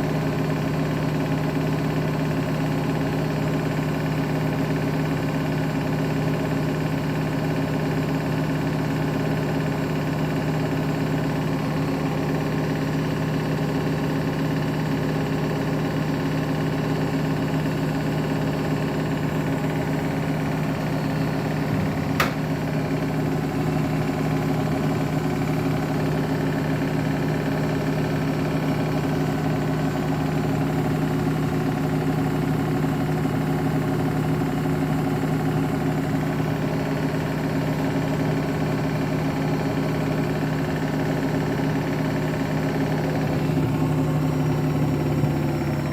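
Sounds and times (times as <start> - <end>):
washing machine motor humming: 0.0 - 45.9
sharp click: 22.1 - 22.5.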